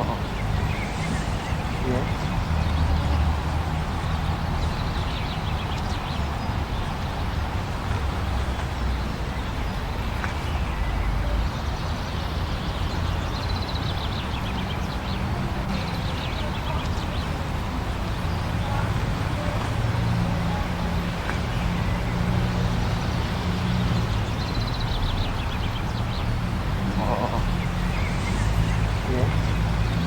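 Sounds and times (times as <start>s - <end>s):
blizzard wind rushing: 0.0s - 4.3s.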